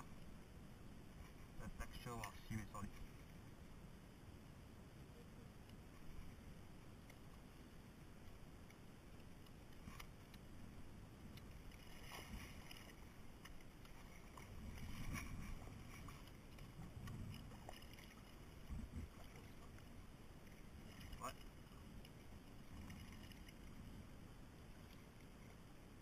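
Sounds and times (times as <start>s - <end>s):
paddle splashing in water: 11.3s - 23.7s.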